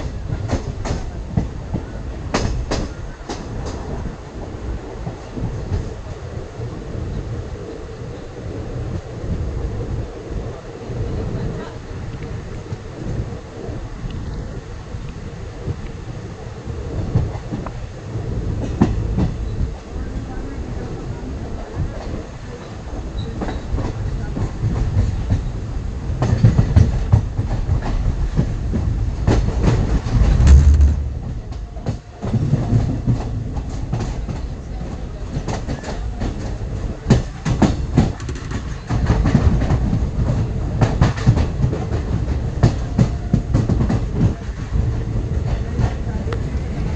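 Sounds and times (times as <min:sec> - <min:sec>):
train rumble: 0:00.0 - 0:46.9
heavy low thud: 0:30.2 - 0:32.0.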